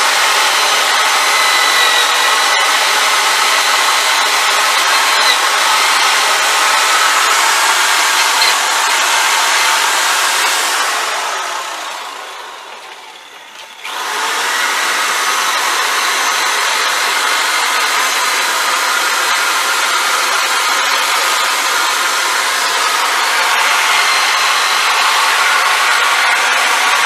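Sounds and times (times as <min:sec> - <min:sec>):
electric drill wire brush scouring metal: 0:00.0 - 0:27.0.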